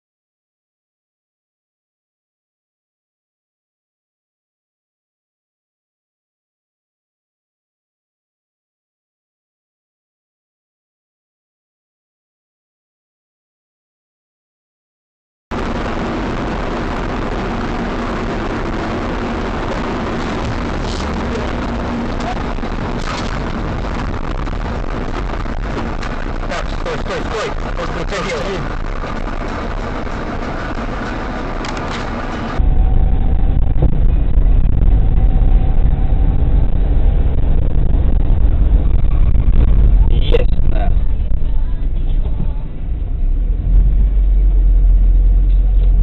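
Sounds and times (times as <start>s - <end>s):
car road and engine noise: 15.5s - 46.0s.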